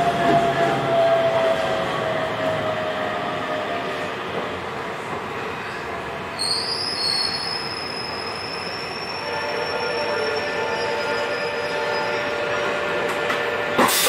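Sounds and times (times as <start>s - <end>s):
wheels rumbling on rail: 0.0s - 14.0s
train inverter whine: 6.6s - 14.0s.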